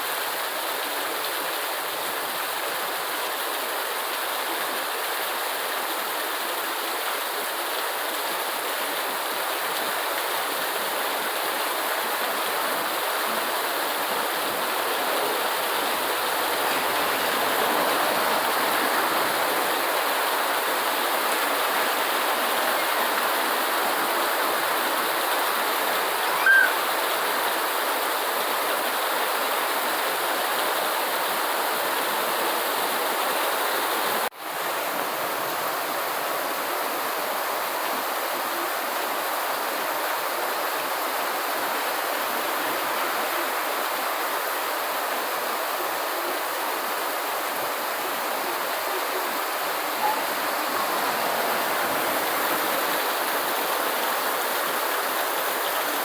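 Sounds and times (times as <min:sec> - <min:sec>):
steady rain: 0:00.0 - 0:56.0
brief high chirp: 0:26.3 - 0:26.8.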